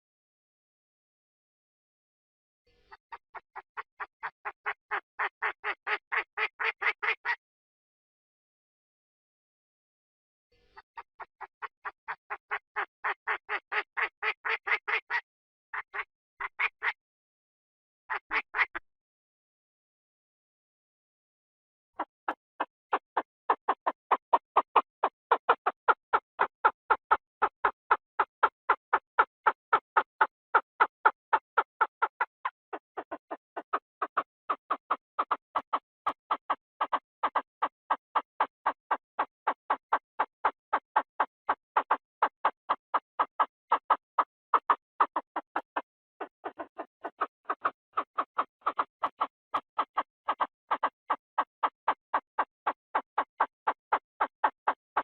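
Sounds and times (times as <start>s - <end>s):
bird calling harsh clipped notes: 44.6s - 50.9s.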